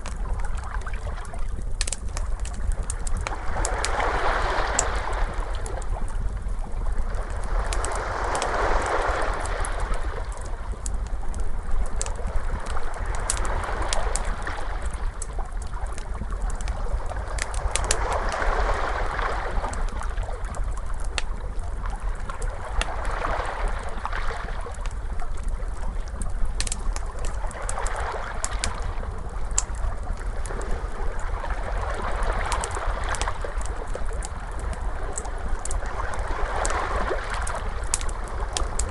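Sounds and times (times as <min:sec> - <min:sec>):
steady low rumble: 0:00.0 - 0:04.0, 0:04.7 - 0:38.9
wood fire crackling and popping: 0:00.0 - 0:18.4, 0:19.6 - 0:22.9, 0:24.6 - 0:31.3, 0:32.0 - 0:38.9
ocean waves washing: 0:03.3 - 0:06.2, 0:07.2 - 0:10.7, 0:17.0 - 0:20.5, 0:26.6 - 0:38.9.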